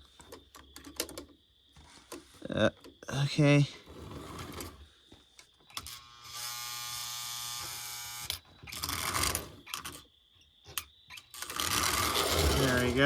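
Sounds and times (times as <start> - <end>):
toy locomotive motor buzzing: 5.7 - 10.0, 11.2 - 13.0.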